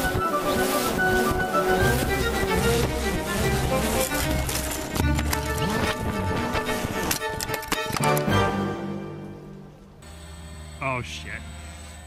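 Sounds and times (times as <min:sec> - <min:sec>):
music with sustained notes: 0:00.0 - 0:10.0.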